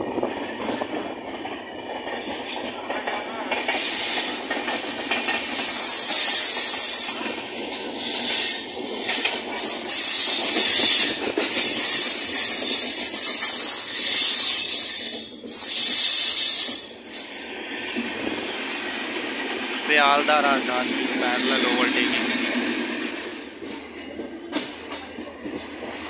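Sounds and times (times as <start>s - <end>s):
train wind and rail noise: 0.0s - 26.0s
high wheel squeal: 5.3s - 17.5s.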